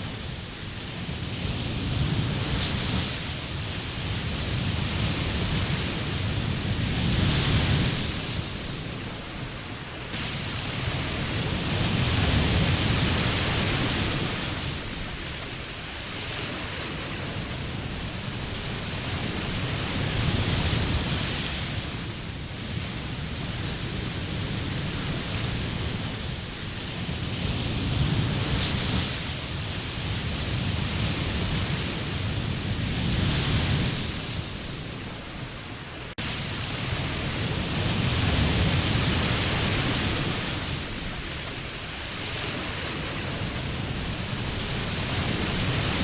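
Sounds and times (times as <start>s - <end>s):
waves breaking on a beach: 0.0s - 46.0s.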